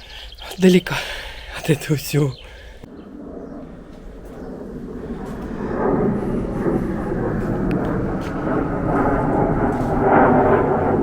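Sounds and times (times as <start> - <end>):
passing vehicle engine rumble: 4.2 - 11.0.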